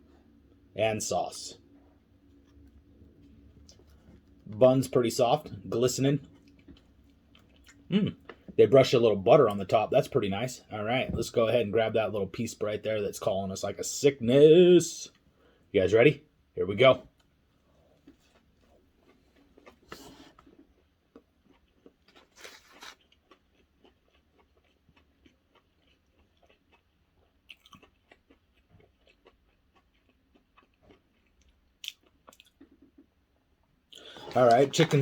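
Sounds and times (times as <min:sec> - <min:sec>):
person chewing with wet mouth clicks: 0:23.1 - 0:33.1.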